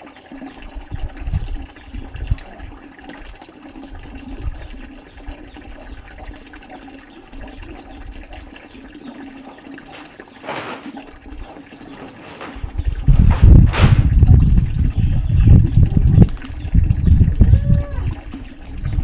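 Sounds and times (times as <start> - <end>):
water running: 0.0 - 19.0
water swish: 9.8 - 14.8.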